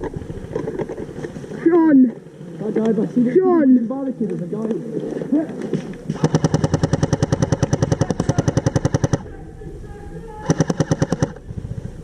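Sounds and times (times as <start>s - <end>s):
airsoft gun firing full auto: 6.2s - 9.3s, 10.4s - 11.4s.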